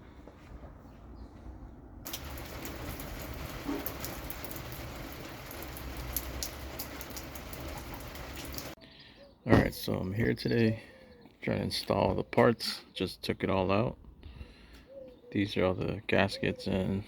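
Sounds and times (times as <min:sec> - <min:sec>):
rain on hard surface: 0:02.1 - 0:08.8.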